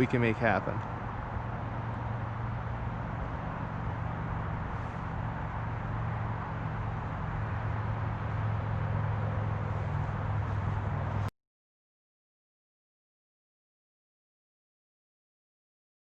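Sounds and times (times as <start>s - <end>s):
creek water flowing: 0.0s - 11.3s.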